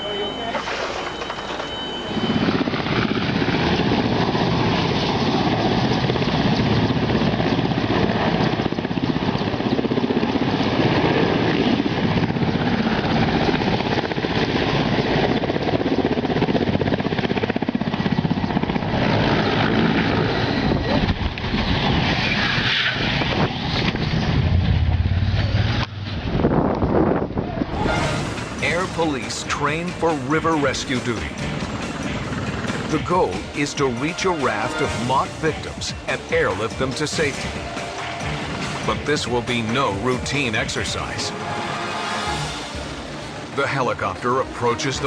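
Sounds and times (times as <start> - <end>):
helicopter rotor and engine: 0.0 - 45.0.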